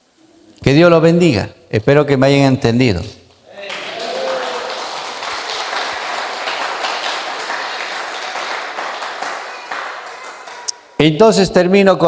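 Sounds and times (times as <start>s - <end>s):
crowd applauding: 3.5s - 10.9s.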